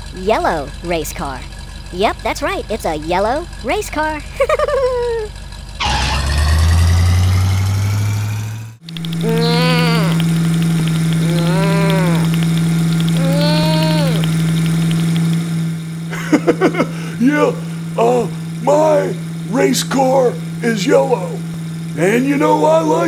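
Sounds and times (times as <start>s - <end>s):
cartoon engine revving: 0.0s - 23.0s
steady engine hum: 0.0s - 23.0s
drawn-out rising and falling calls: 5.8s - 15.3s.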